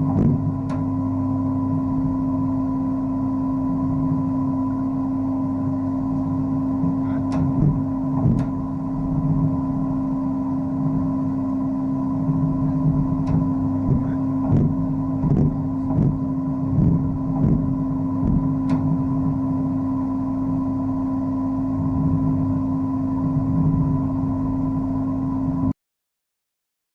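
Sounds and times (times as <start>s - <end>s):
motor hum: 0.0s - 25.8s
knocks and clicks: 7.2s - 8.6s, 13.2s - 16.2s, 16.8s - 19.0s.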